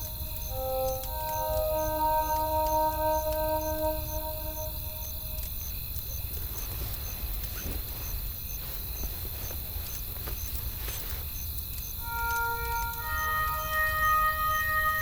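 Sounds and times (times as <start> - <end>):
music: 0.0 - 5.6, 12.0 - 15.0.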